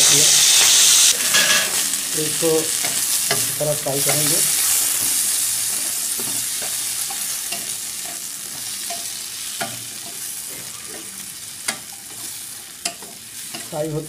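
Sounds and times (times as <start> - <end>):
spatula scraping a wok: 0.0 - 2.0
vegetables sizzling in hot oil: 0.0 - 14.0.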